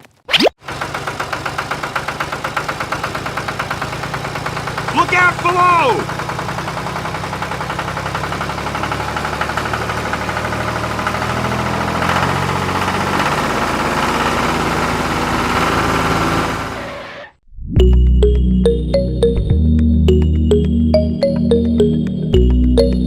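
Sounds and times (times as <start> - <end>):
small tractor engine running: 0.6 - 17.1.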